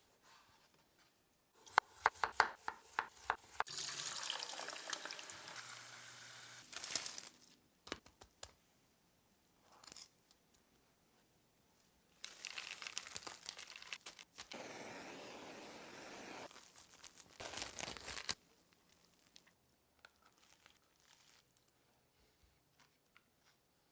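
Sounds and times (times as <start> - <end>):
wrapper crinkling and tearing: 6.7 - 7.6, 12.2 - 14.6, 16.5 - 21.7
steady hiss: 14.5 - 16.5.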